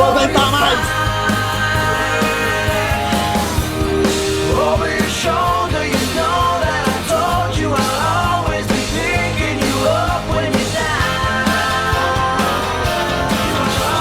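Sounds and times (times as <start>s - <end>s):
rock song with singing: 0.0s - 14.0s.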